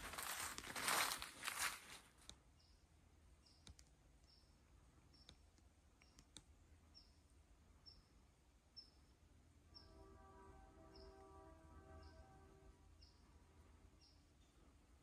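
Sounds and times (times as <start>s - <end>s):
small bird chirping: 2.6s - 9.9s
faint clicks: 3.6s - 4.0s.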